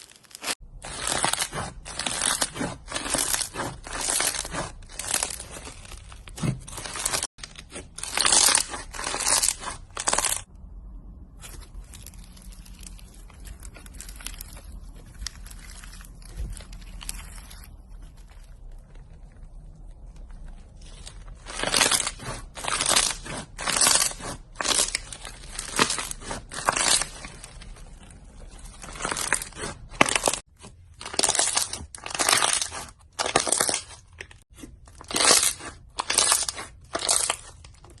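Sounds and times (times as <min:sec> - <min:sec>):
crumbly material crunching: 0:00.0 - 0:10.5, 0:11.4 - 0:38.0.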